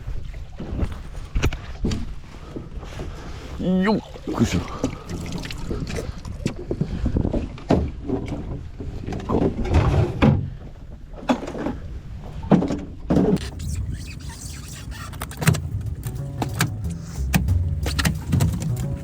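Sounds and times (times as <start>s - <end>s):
thumps and knocks on inflatable boat: 0.0s - 3.2s, 6.6s - 13.6s, 17.3s - 19.0s
low steady rumble: 13.4s - 19.0s.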